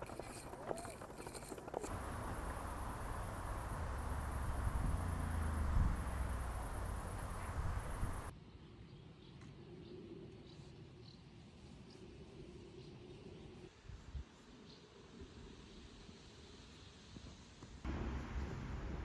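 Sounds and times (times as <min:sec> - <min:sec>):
insect chirring: 0:00.0 - 0:08.3.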